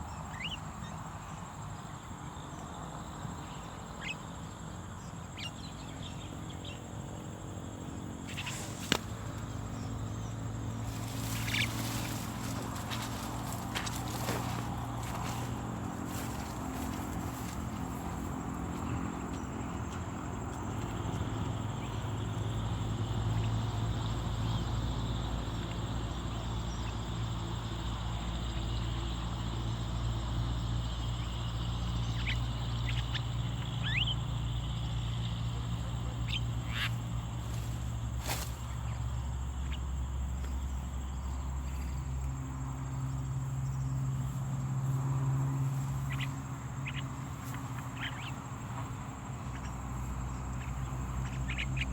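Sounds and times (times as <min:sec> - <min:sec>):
high insect buzz: 0:00.0 - 0:51.9
steady low hum: 0:03.3 - 0:27.0
bird chirps: 0:08.2 - 0:15.5, 0:46.1 - 0:48.4.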